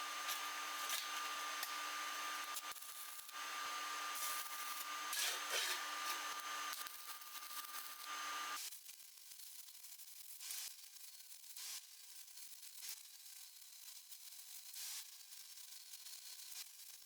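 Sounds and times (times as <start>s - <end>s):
faint inverter whine: 0.0s - 8.6s
welding arc crackling: 0.0s - 8.6s.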